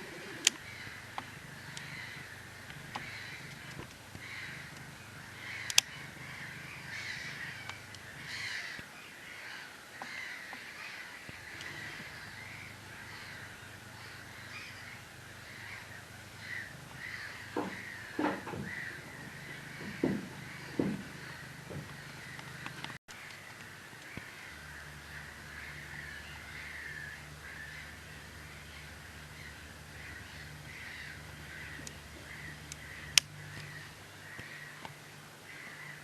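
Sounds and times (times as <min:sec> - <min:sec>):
flock of birds calling: 0:00.0 - 0:36.0
dull knocks: 0:17.5 - 0:22.9.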